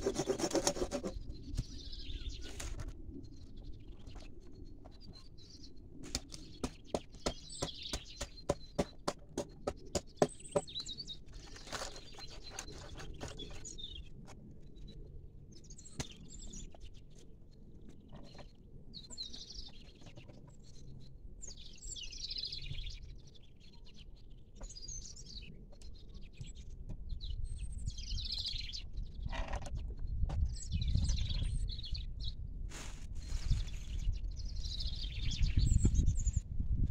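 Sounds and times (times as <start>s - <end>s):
small birds chirping: 0.0s - 32.4s, 33.2s - 36.4s.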